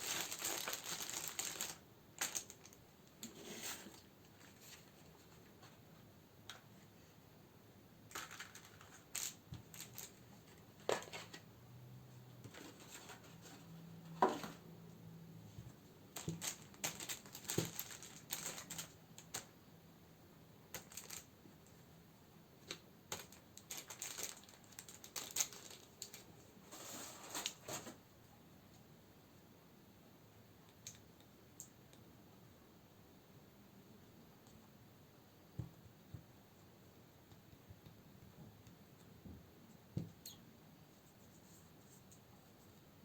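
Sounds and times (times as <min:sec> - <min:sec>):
packaging crinkling: 0:00.0 - 0:02.8, 0:08.1 - 0:10.2, 0:16.2 - 0:19.5, 0:20.7 - 0:21.3, 0:23.1 - 0:26.3.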